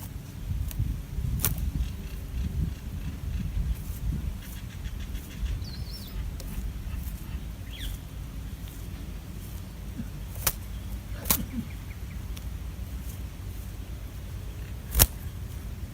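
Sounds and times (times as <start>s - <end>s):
low rumble of wind or water: 0.0s - 15.9s
sharp clicks: 10.3s - 11.6s, 14.6s - 15.3s.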